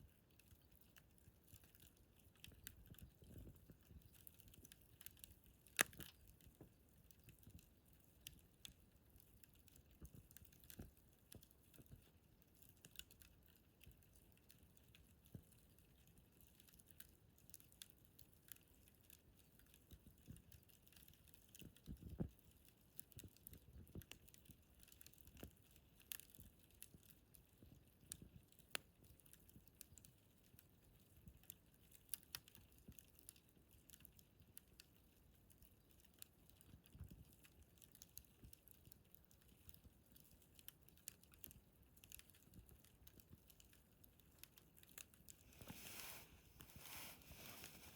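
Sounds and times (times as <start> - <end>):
wood fire crackling: 0.0 - 47.9
fire pops: 2.4 - 6.2.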